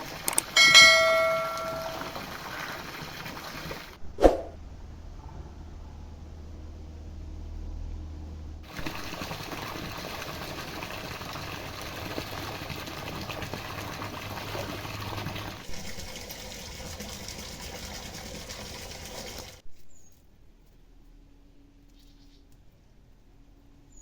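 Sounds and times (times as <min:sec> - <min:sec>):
water running and splashing: 0:00.0 - 0:04.0, 0:08.6 - 0:19.6.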